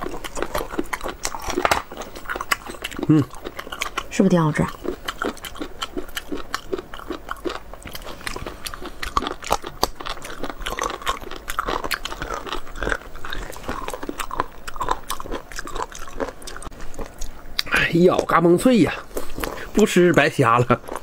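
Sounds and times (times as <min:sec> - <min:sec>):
people chewing crunchy food: 0:00.0 - 0:21.0.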